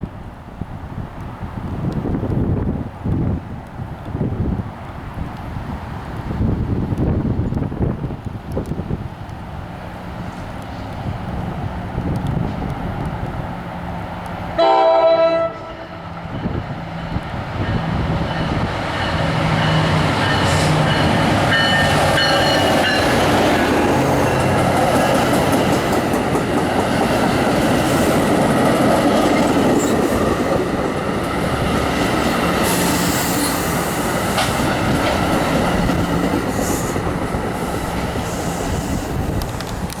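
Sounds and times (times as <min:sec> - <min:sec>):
train rumbling on rails: 0:00.0 - 0:40.0
train horn blast: 0:14.6 - 0:16.6.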